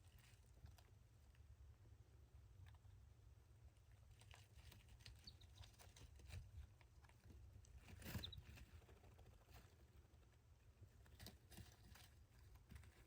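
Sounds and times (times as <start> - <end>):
faint scratching and ticking: 3.8 - 13.0.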